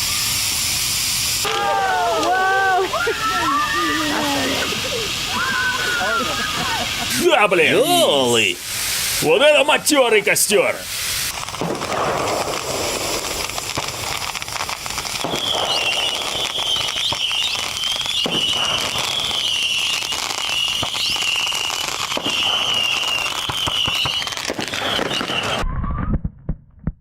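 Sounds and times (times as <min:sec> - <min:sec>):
bonfire crackling with fireworks: 0:00.0 - 0:27.0
high wavering whistle: 0:15.2 - 0:26.1.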